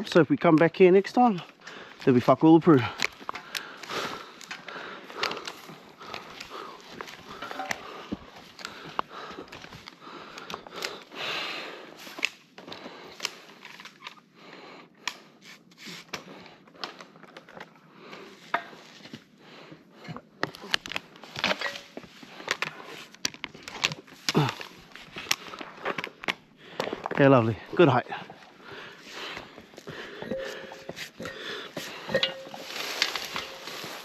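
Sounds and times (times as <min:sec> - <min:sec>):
pine branches rustling: 0:01.5 - 0:11.1, 0:20.7 - 0:34.0
branches snapping: 0:02.7 - 0:11.1, 0:12.0 - 0:14.1, 0:31.8 - 0:34.0.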